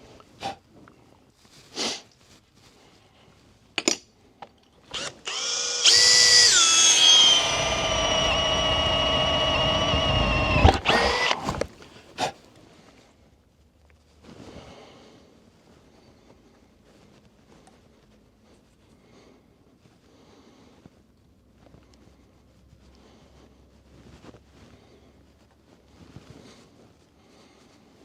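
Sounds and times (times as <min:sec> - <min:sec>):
electric drill whining: 0:04.9 - 0:11.9.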